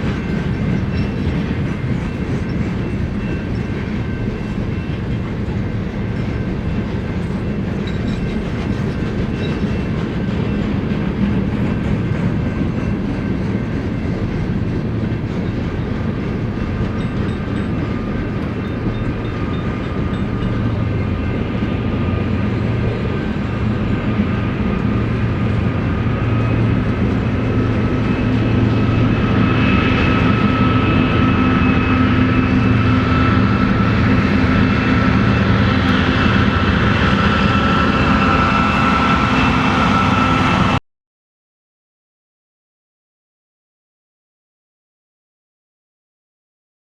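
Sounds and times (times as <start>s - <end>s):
freight train rumbling past: 0.0s - 40.8s
steady whining tone: 16.6s - 40.8s.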